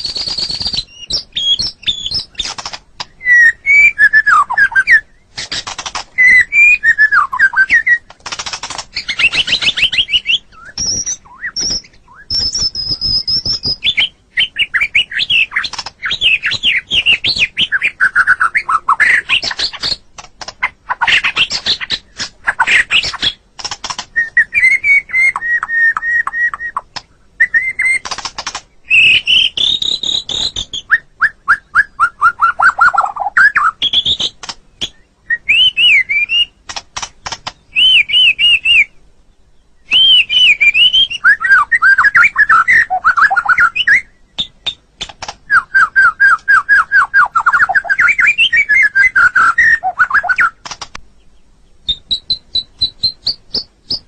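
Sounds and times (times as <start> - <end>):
bird singing varied song: 0.0 - 54.0
bird clicking notes: 1.7 - 3.2, 7.2 - 9.9, 27.9 - 28.7, 36.6 - 37.9.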